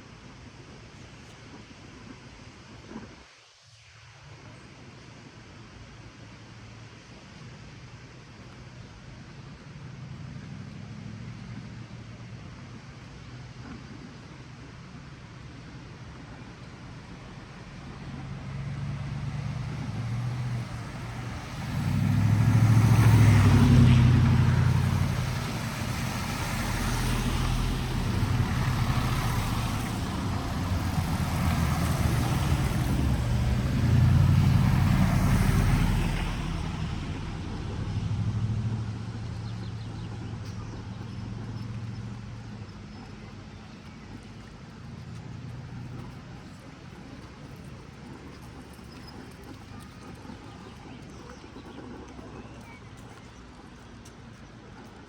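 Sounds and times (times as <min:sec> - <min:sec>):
vehicles passing on wet street: 0:08.0 - 0:55.0.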